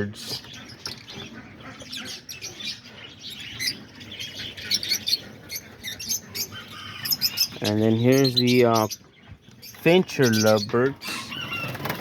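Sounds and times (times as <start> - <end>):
flock of birds chirping: 0.0 - 12.0.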